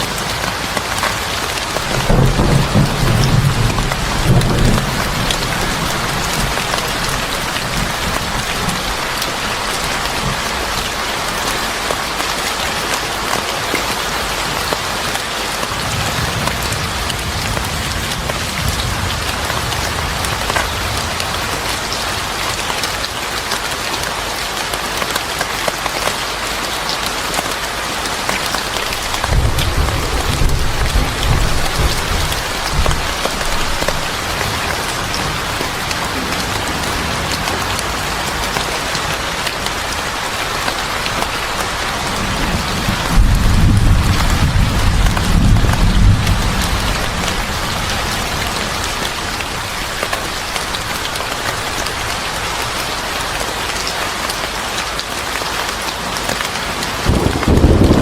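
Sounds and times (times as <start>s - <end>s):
heavy rain pattering: 0.0s - 58.0s
thunder rumbling: 0.1s - 11.4s, 15.8s - 22.7s, 28.8s - 52.4s, 57.0s - 58.0s.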